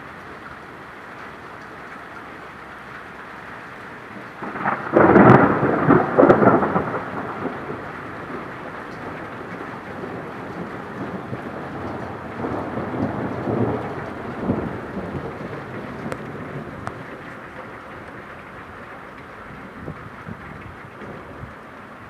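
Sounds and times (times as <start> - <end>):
steady rain: 0.0 - 22.0
thunderclap: 4.4 - 18.2.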